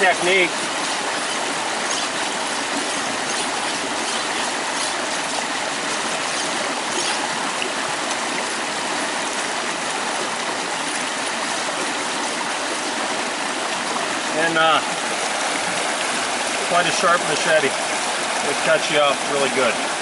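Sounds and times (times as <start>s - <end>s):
blade scraping on wet stone: 0.0s - 7.5s.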